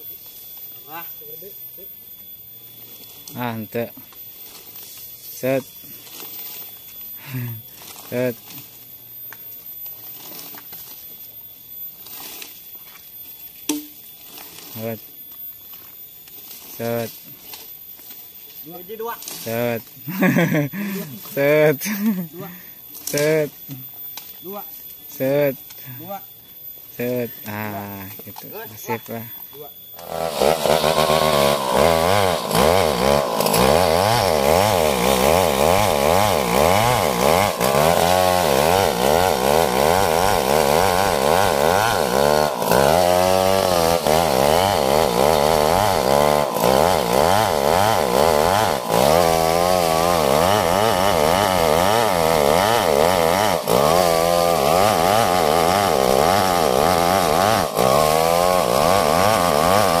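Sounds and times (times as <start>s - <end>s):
chainsaw cutting log: 18.9s - 22.0s, 30.0s - 60.0s.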